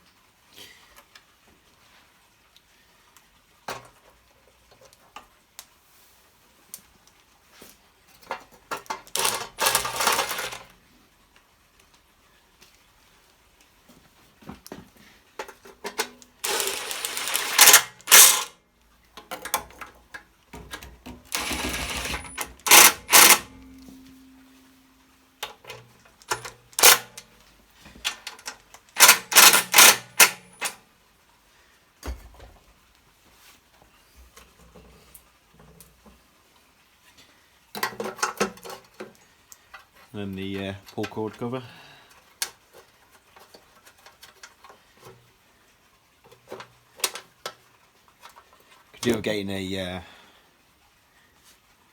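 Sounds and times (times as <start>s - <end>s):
rapid clicking of hand tool: 9.0s - 10.7s, 16.4s - 18.5s, 21.2s - 23.6s, 26.2s - 27.2s, 28.1s - 30.8s.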